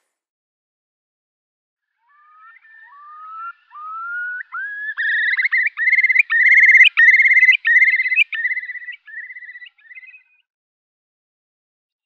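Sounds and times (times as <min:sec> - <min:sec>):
songbird singing: 0:02.0 - 0:10.5.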